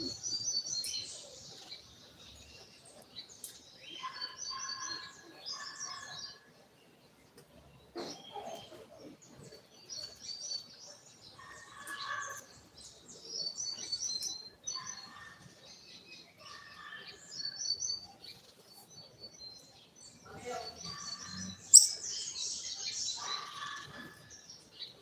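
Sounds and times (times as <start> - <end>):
bird singing high chirps: 19.1 - 23.8.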